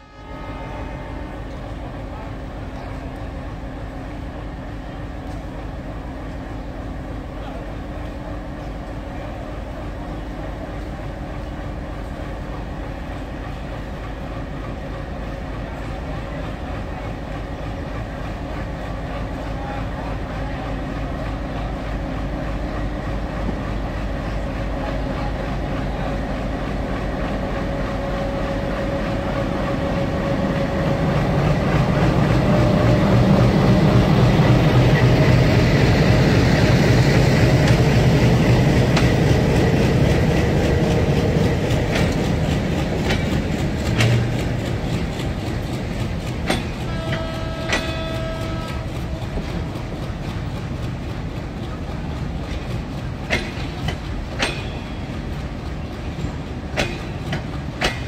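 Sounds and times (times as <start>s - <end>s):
diesel locomotive engine drone: 0.0s - 58.0s
wheels clicking over rail joints: 37.6s - 58.0s.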